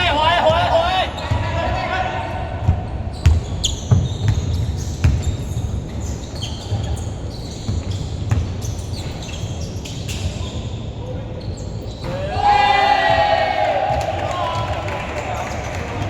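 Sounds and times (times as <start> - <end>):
sneakers squeaking on court: 0.3 - 1.8, 2.6 - 12.2
basketball bouncing on court: 2.6 - 9.4.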